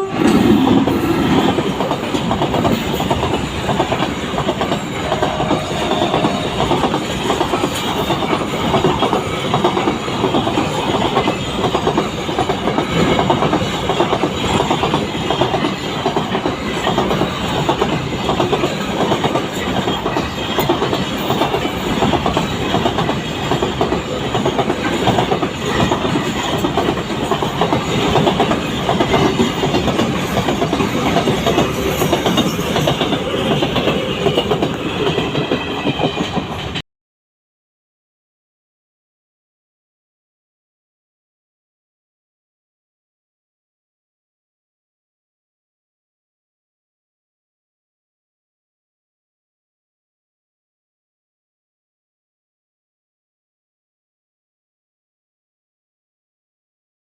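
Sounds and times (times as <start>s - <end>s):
train wheels clattering on rails: 0.0s - 36.8s.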